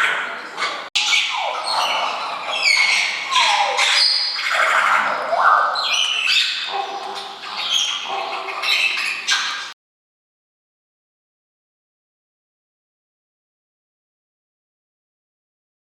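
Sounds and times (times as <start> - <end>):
water birds squawking: 0.0 - 9.8.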